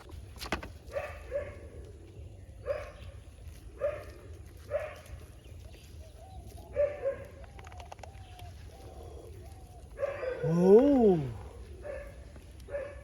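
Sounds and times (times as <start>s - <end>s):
dog barking: 0.9s - 1.7s, 2.6s - 3.1s, 3.8s - 5.1s, 6.7s - 7.3s, 9.9s - 13.0s.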